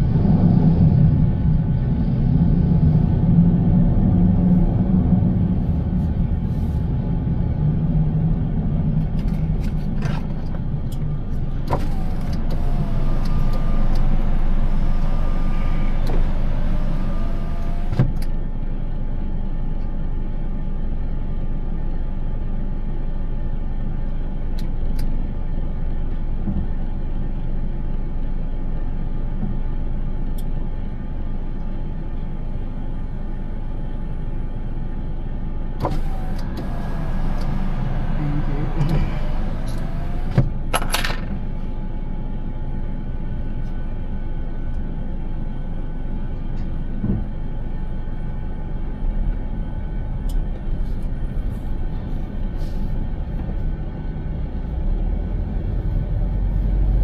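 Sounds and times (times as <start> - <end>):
car driving rumble: 0.0 - 19.1, 35.7 - 42.2.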